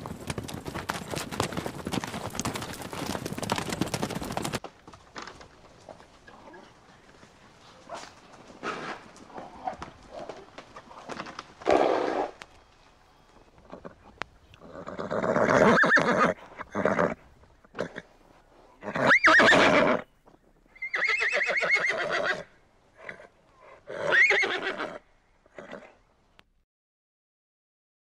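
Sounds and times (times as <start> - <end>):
horses whinnying: 13.6 - 18.1, 18.8 - 20.1, 20.7 - 26.0.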